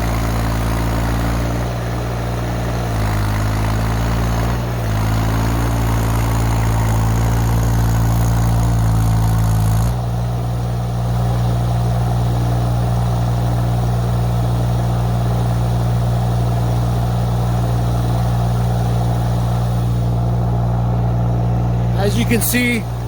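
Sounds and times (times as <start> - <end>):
excavator engine running steadily: 0.0 - 23.0.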